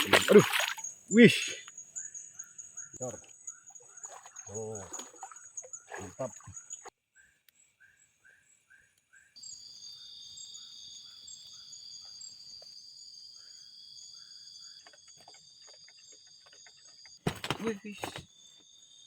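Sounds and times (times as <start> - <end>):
insects droning: 0.0 - 6.9, 9.4 - 19.0.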